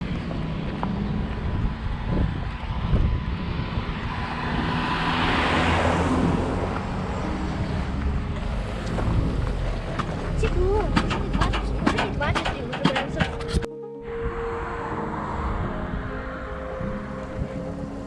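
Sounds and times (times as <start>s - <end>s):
motorcycle engines running: 6.1s - 13.6s.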